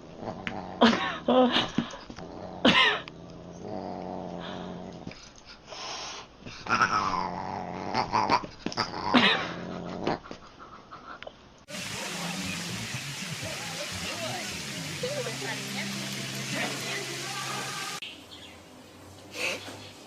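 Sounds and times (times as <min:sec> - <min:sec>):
animal growling: 0:00.0 - 0:01.2, 0:02.2 - 0:05.2, 0:06.6 - 0:10.3.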